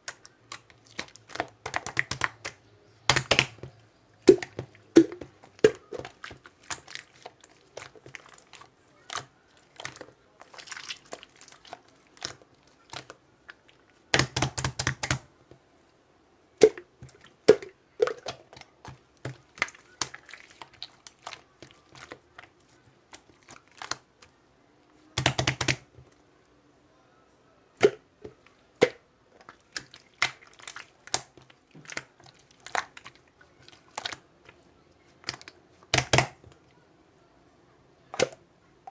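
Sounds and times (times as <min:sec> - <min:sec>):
slime crackling: 0:00.0 - 0:15.3, 0:16.6 - 0:24.3, 0:29.4 - 0:36.4
slime sticky clicks and pops: 0:35.3 - 0:36.4.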